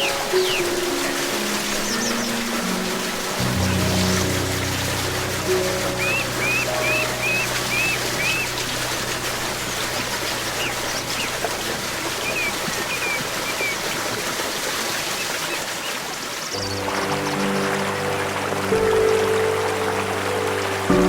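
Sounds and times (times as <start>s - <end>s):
soft music: 0.0s - 13.8s, 16.6s - 21.0s
stream flowing: 0.0s - 21.0s
small bird chirping: 6.0s - 8.6s.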